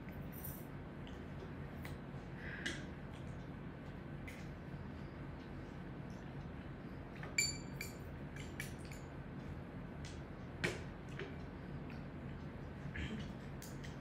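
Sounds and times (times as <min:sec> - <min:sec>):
low room noise: 0:00.0 - 0:14.0
utensils clinking against dishes: 0:07.4 - 0:09.1.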